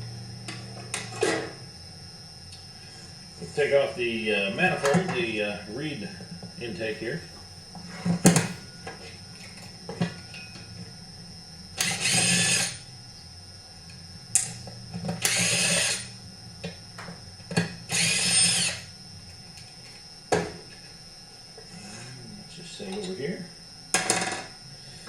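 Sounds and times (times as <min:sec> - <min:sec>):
power driver whirring: 0:06.6 - 0:08.9, 0:11.8 - 0:12.9, 0:14.4 - 0:16.2, 0:17.5 - 0:18.9.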